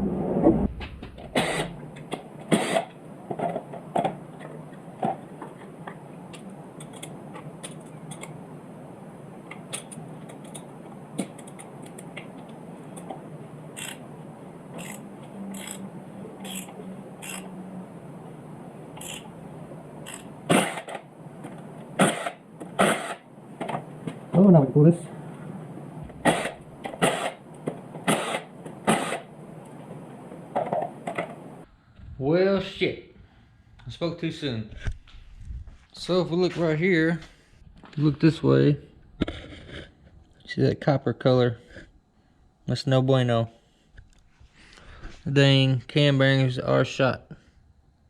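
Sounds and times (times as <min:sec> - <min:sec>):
socket ratchet clicking: 0:13.8 - 0:14.0, 0:14.8 - 0:15.8, 0:16.4 - 0:17.5, 0:19.0 - 0:19.3, 0:20.0 - 0:21.0.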